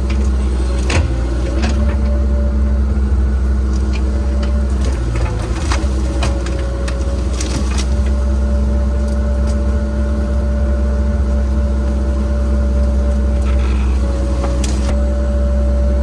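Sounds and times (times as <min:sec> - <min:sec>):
excavator diesel engine droning: 0:00.0 - 0:16.0.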